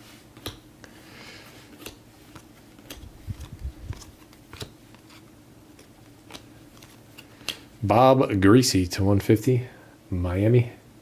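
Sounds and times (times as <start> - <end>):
trading cards being flipped: 0.4 - 0.6, 1.7 - 7.7.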